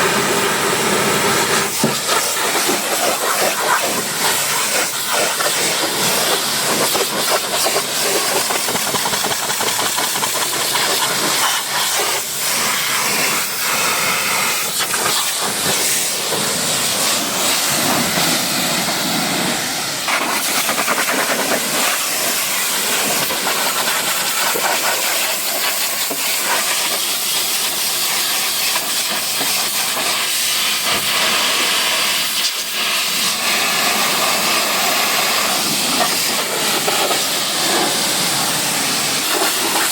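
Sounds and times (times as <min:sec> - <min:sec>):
high-pressure spray hissing: 0:00.0 - 0:39.9.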